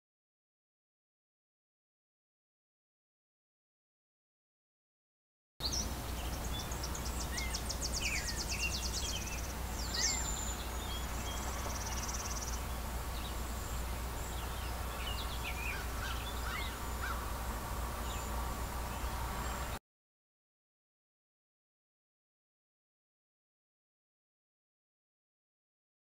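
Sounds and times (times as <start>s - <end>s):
birds chirping and trilling: 5.6s - 19.8s
low hum: 5.6s - 19.8s.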